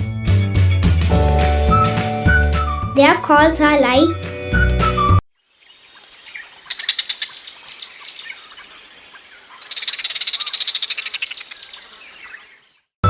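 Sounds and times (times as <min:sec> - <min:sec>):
heron clicking calls: 0:05.8 - 0:12.6.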